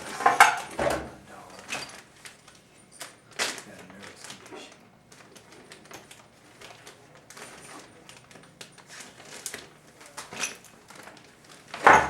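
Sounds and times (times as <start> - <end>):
dog moving about clicks and rustles: 0.1 - 12.0.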